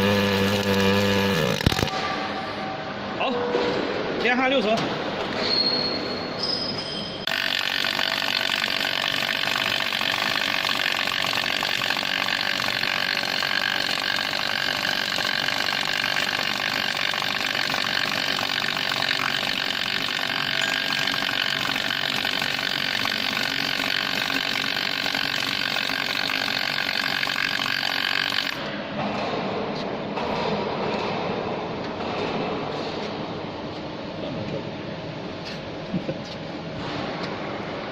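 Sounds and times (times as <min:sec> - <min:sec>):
welding arc crackling hiss: 0:00.0 - 0:01.9, 0:07.3 - 0:28.6.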